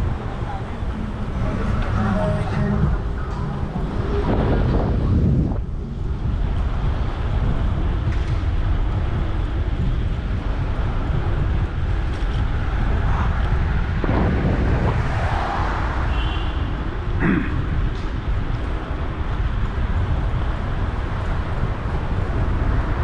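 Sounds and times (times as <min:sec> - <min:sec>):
street traffic: 0:00.0 - 0:23.0
wind rumble on microphone: 0:00.0 - 0:23.0
brief high tone: 0:01.4 - 0:04.3.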